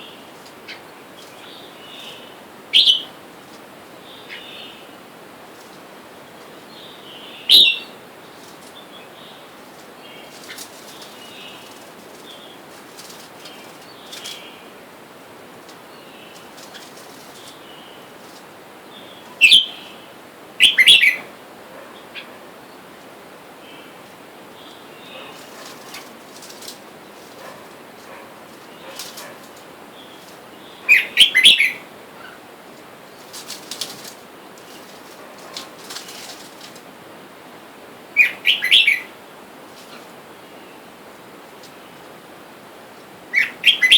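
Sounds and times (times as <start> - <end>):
birds chirping softly: 0.0 - 43.9
faint rustling: 9.6 - 14.6, 15.6 - 18.6, 25.1 - 30.8, 32.7 - 37.0.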